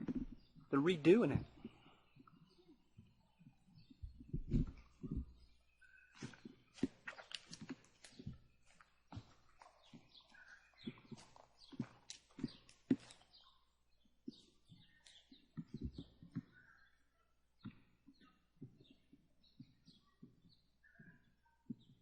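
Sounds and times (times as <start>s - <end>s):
faint footsteps: 0.0s - 13.6s, 14.2s - 16.7s
faint bird chirps: 0.0s - 22.0s.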